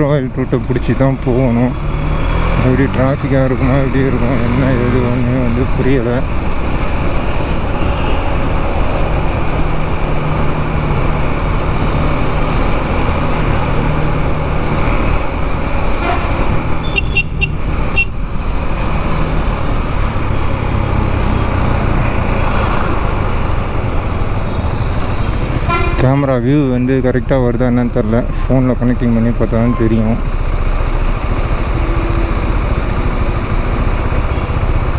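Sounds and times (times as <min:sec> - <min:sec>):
wind and road noise: 0:00.0 - 0:34.9
horn toots: 0:15.9 - 0:18.2, 0:25.5 - 0:26.2.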